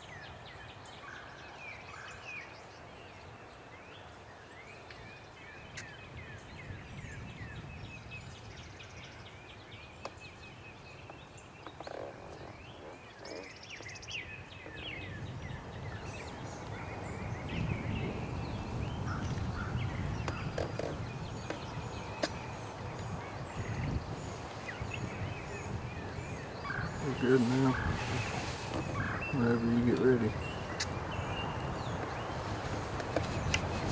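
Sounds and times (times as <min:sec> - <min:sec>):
songbirds chirping: 0:00.0 - 0:33.9
low wind rumble: 0:05.8 - 0:09.2, 0:14.1 - 0:33.9
wild turkey calls: 0:18.6 - 0:33.9.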